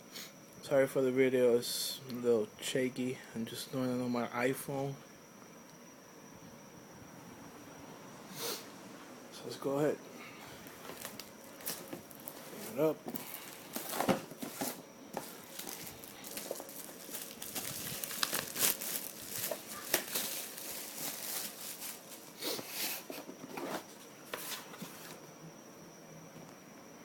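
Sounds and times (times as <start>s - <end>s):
packaging crinkling and rustling: 10.6s - 22.4s.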